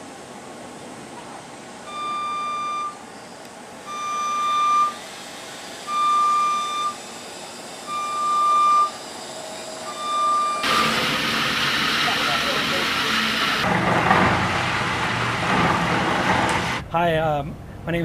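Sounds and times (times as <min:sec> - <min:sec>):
electronic warning beeps: 0:01.9 - 0:05.0, 0:05.8 - 0:07.0, 0:07.8 - 0:09.0, 0:09.6 - 0:11.1.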